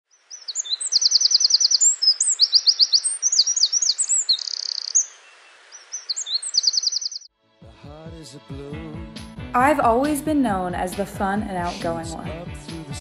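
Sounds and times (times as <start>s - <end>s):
songbirds singing: 0.1s - 7.3s.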